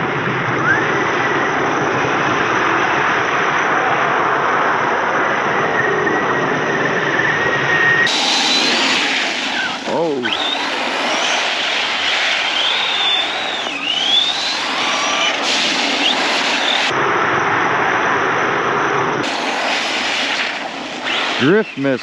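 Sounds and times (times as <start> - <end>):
electric motor whining: 8.0 - 16.9.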